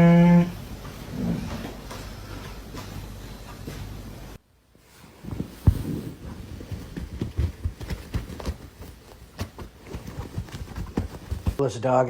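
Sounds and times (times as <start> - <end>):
heavy thump: 5.2 - 11.6.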